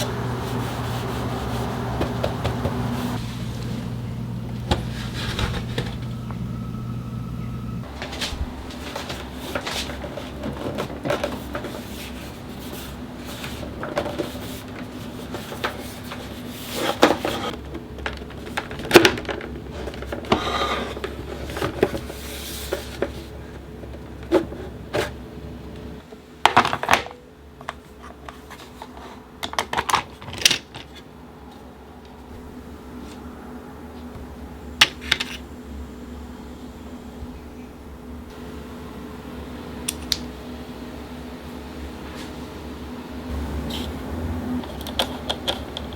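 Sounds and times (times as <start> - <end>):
steady low hum: 0.0 - 26.5.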